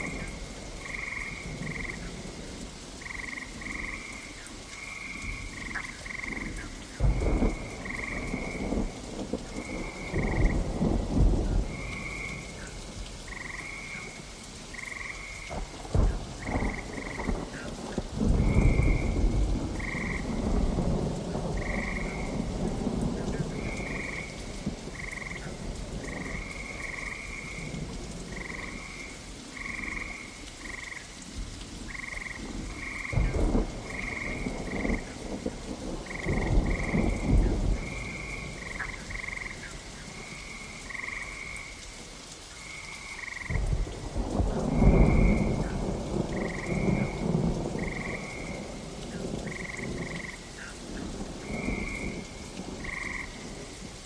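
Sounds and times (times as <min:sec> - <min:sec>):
frog croaking: 0:00.0 - 0:02.2, 0:03.0 - 0:08.6, 0:09.6 - 0:10.7, 0:13.3 - 0:15.5, 0:16.4 - 0:17.7, 0:19.8 - 0:20.4, 0:21.5 - 0:22.4, 0:25.0 - 0:31.2, 0:31.9 - 0:35.2, 0:36.0 - 0:41.8, 0:42.6 - 0:43.9, 0:44.8 - 0:50.8, 0:51.4 - 0:53.5
steady rain: 0:00.0 - 0:54.0
rolling thunder: 0:05.2 - 0:13.8, 0:15.5 - 0:30.8, 0:32.1 - 0:39.6, 0:43.4 - 0:53.8.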